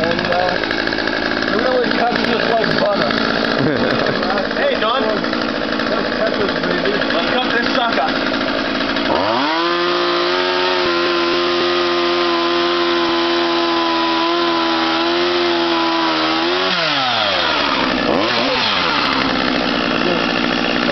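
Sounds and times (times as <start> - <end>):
chainsaw revving: 0.0 - 20.9.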